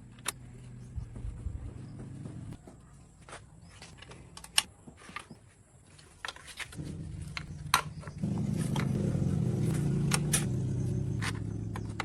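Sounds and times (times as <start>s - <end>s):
engine running at low speed: 0.0s - 2.6s, 6.8s - 12.0s.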